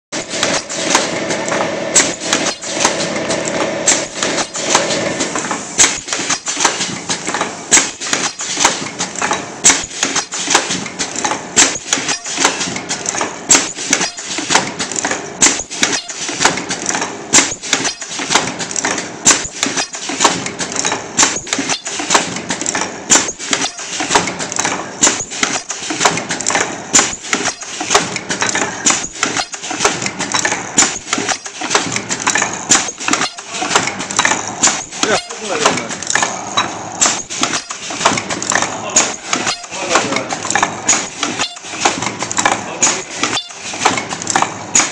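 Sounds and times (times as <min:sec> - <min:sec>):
machine clicking and clacking: 0:00.1 - 0:44.9
steady machine hum: 0:00.2 - 0:44.9.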